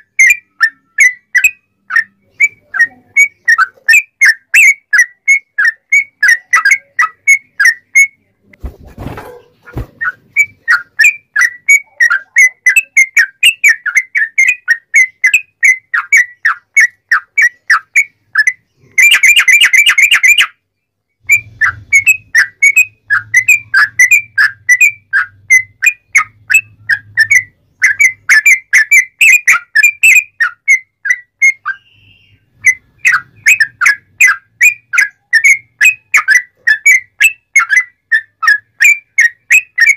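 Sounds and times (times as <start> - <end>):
bulbul chirping: 0.0 - 20.6, 21.2 - 39.9.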